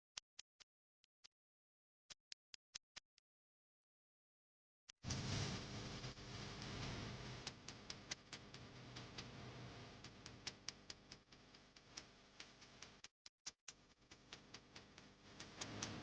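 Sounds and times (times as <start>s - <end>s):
low hiss: 5.1s - 8.1s
faint regular ticking: 7.4s - 13.1s, 13.7s - 16.0s.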